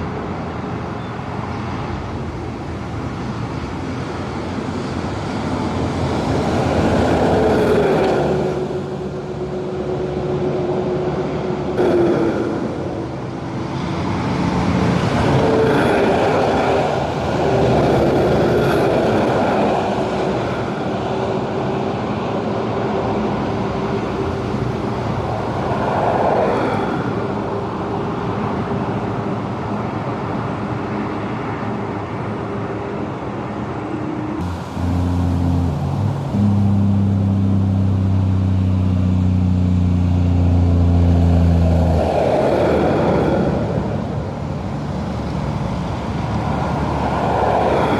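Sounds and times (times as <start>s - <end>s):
heavy trucks driving past: 0.0s - 47.9s.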